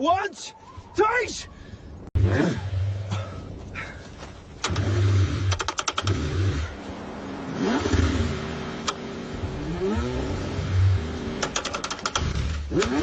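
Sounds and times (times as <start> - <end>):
starter clicks: 4.6 - 6.2, 11.4 - 13.0
car engine cranking: 4.6 - 6.8, 7.6 - 10.4, 11.2 - 13.0.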